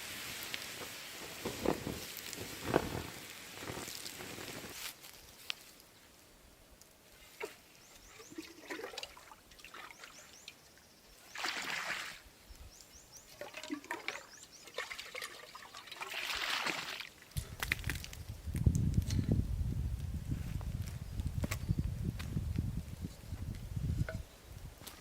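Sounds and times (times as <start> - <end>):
water pouring: 8.2 - 10.2, 13.4 - 17.2.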